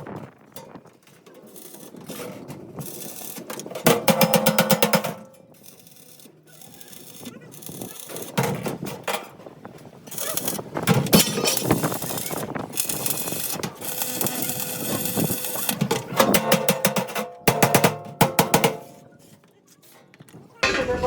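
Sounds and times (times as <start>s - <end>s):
metal clattering: 11.0s - 12.3s, 20.6s - 21.0s.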